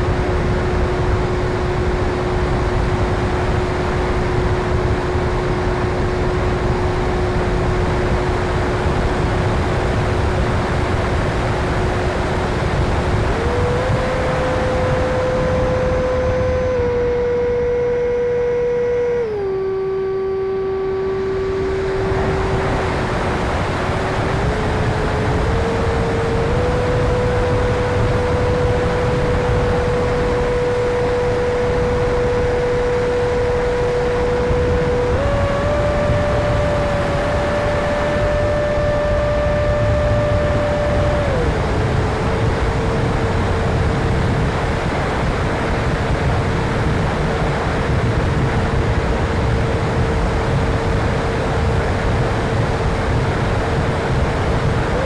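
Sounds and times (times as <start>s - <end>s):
electric ducted fan whining: 0.0s - 55.0s
steady rushing noise: 0.0s - 55.0s.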